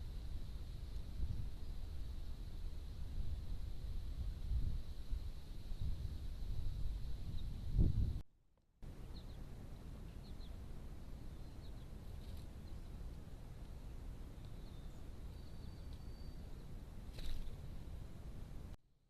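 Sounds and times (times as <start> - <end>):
bird chirps: 8.9 - 10.6, 11.3 - 13.0, 13.8 - 17.5.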